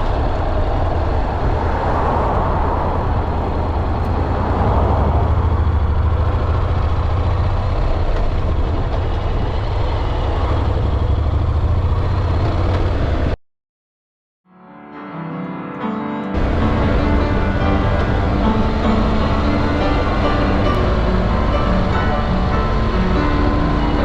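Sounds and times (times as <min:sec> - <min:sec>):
motorcycle engine drone: 0:00.0 - 0:13.4, 0:16.4 - 0:24.0
wind and road rush: 0:00.0 - 0:13.4, 0:16.4 - 0:24.0
music: 0:14.5 - 0:24.0.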